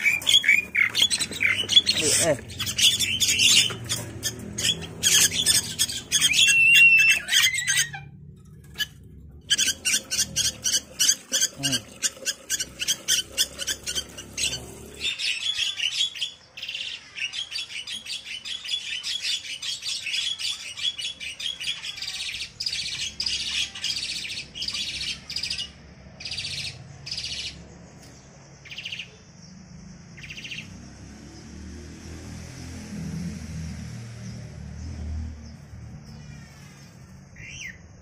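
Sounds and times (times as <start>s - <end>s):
pet bird chattering calls: 0.0s - 8.0s.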